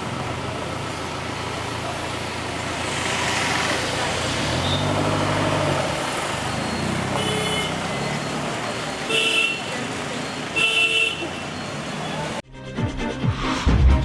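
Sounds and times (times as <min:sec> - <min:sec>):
road traffic: 0:00.0 - 0:12.4
vehicle horn tooting: 0:07.0 - 0:08.0, 0:09.0 - 0:09.9, 0:10.5 - 0:11.6
music: 0:12.4 - 0:14.0.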